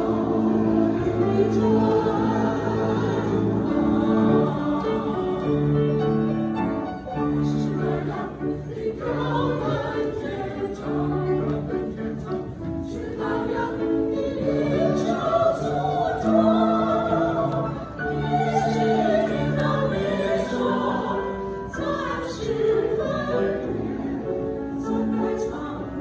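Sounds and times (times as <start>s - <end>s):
choir singing long notes: 0.0s - 26.0s.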